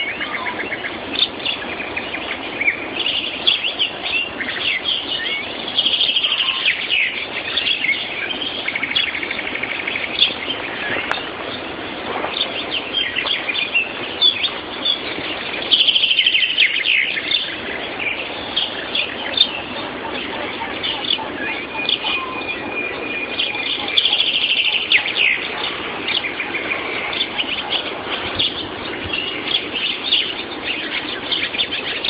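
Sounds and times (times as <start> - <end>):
fast bird trill: 0.0 - 32.0
songbirds singing: 0.0 - 32.0.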